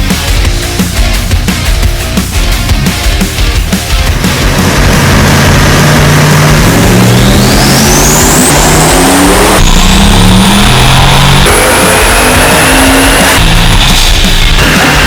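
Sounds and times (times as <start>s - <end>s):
car engine accelerating hard: 3.4s - 15.0s
high turbo whistle: 4.4s - 15.0s.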